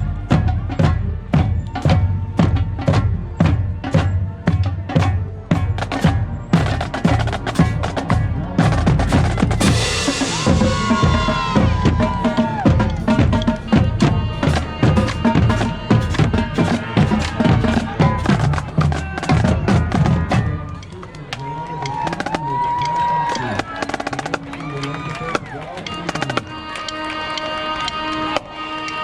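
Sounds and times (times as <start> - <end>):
snare and bass drums: 0.0 - 21.0, 21.8 - 26.6
cymbal crash: 9.6 - 12.0.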